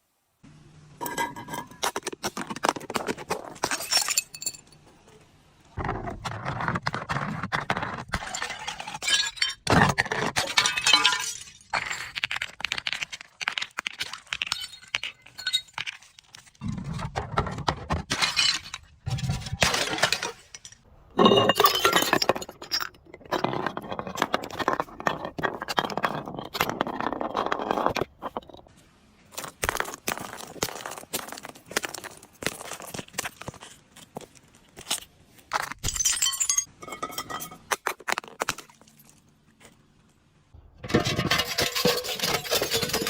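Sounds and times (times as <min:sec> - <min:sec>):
glass crushing and crunching: 0:01.0 - 0:04.8, 0:08.0 - 0:16.8, 0:17.4 - 0:28.7, 0:29.4 - 0:39.2, 0:40.8 - 0:43.0
glass shards clinking: 0:03.6 - 0:04.8, 0:14.4 - 0:16.1, 0:35.8 - 0:37.7, 0:41.0 - 0:43.0.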